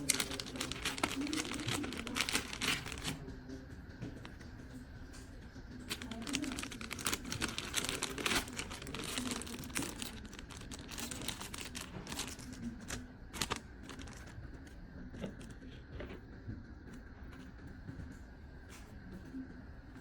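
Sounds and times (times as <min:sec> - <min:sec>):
packaging crinkling: 0:00.0 - 0:03.2, 0:05.9 - 0:14.4.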